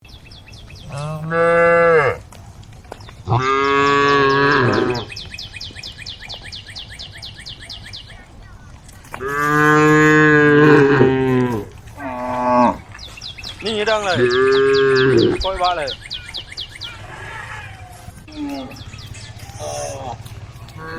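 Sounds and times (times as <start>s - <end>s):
cows mooing: 0.8s - 2.2s, 3.2s - 5.2s, 9.2s - 13.0s, 13.7s - 15.7s.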